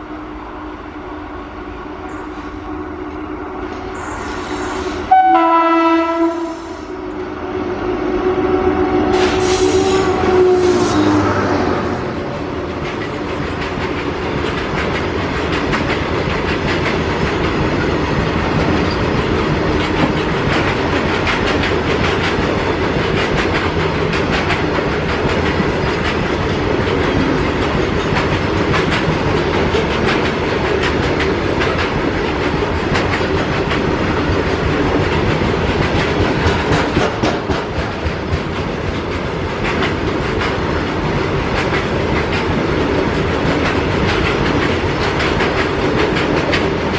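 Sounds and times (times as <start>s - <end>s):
train wheels clattering over rail joints: 11.8s - 46.9s.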